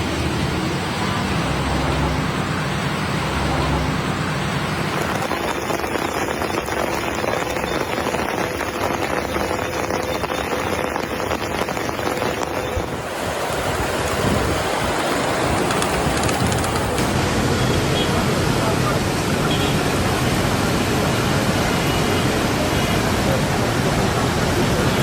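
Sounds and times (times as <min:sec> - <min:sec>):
water rushing: 0:00.0 - 0:17.5.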